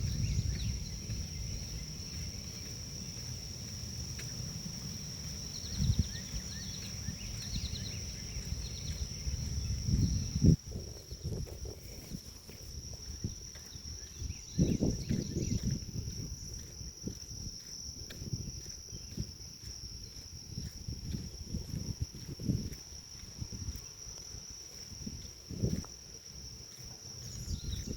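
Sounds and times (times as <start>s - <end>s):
insects trilling: 0.0s - 27.9s
bird chirping: 5.4s - 9.3s.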